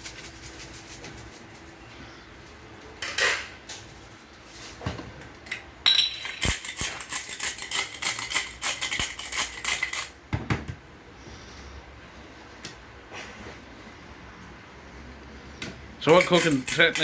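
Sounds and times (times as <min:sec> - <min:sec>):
utensils and dishes clattering: 0:05.5 - 0:10.2, 0:16.0 - 0:17.0.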